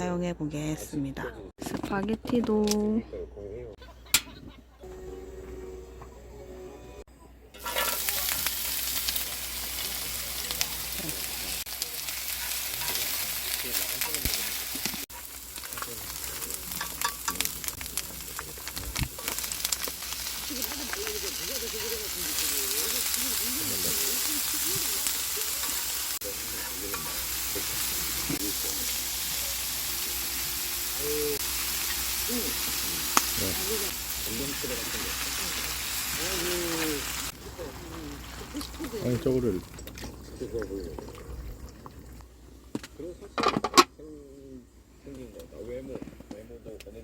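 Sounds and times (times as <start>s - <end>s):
food sizzling in hot oil: 7.6s - 42.2s.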